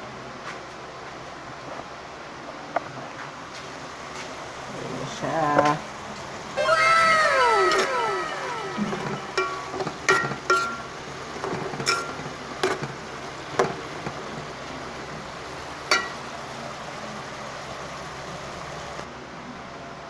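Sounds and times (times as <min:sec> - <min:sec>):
steady background hiss: 0:00.0 - 0:20.0
metal utensil clinking on pan: 0:10.1 - 0:12.9, 0:15.9 - 0:16.2.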